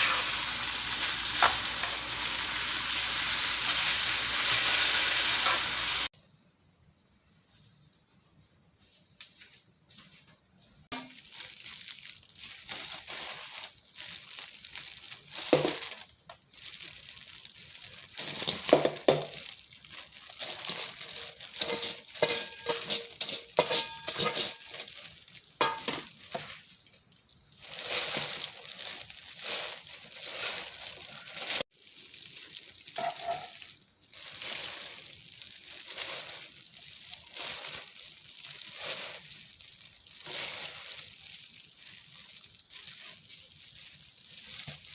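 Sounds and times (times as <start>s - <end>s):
rustling and crunching handling: 0.0s - 44.9s
utensils clinking on dishware: 21.6s - 24.9s.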